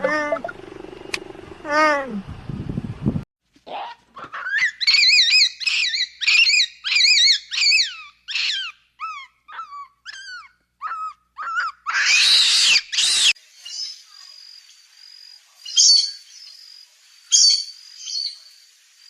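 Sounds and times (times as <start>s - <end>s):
animal whining yelps: 0.0s - 0.5s, 3.7s - 13.4s
loud harsh animal calls: 3.7s - 13.4s.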